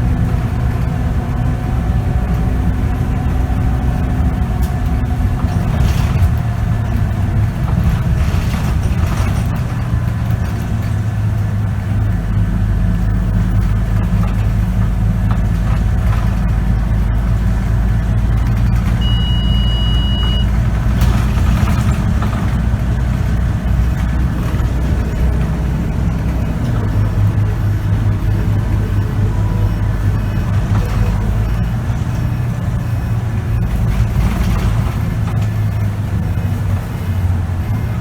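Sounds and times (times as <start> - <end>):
bus engine running: 0.0 - 38.0
electronic beep: 18.6 - 38.0.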